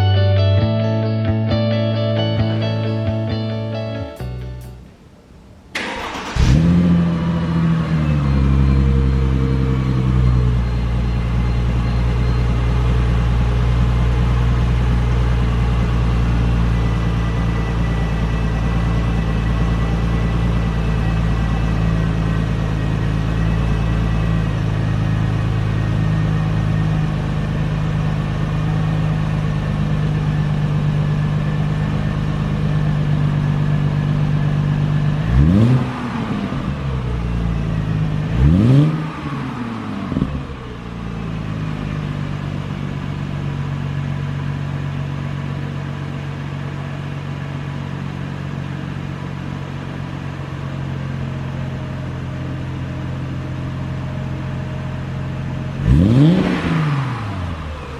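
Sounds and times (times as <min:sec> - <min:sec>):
car engine idling: 0:03.1 - 0:57.9
engine revving: 0:05.8 - 0:26.9, 0:32.6 - 0:42.0, 0:55.8 - 0:57.9.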